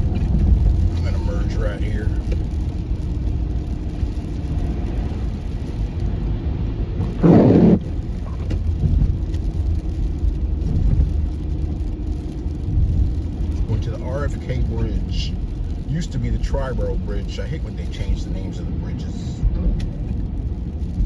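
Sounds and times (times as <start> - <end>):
road and engine rumble: 0.0 - 21.0
loud noisy burst: 7.0 - 7.9.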